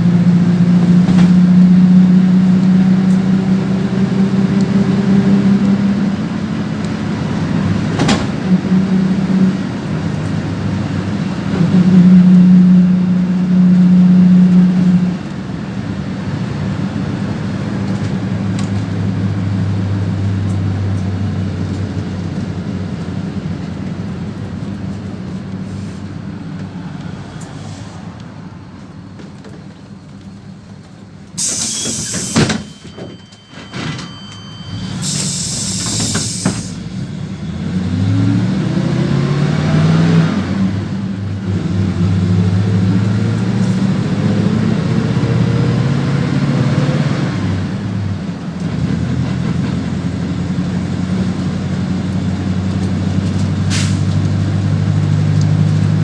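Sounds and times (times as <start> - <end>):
bus engine revving: 0.0 - 32.7, 34.7 - 56.0
compressed air hisses: 31.4 - 32.7, 35.0 - 36.8.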